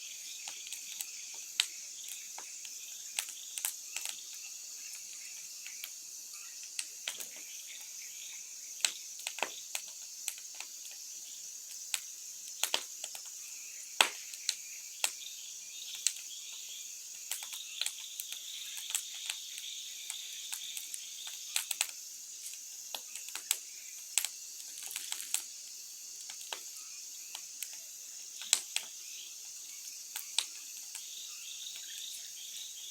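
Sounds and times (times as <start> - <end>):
insects chirring: 0.0 - 32.9
bonfire crackling and popping: 0.4 - 6.0, 6.7 - 7.5, 8.8 - 11.0, 11.7 - 15.2, 17.1 - 25.6, 26.2 - 26.7, 27.3 - 29.0, 30.1 - 31.1.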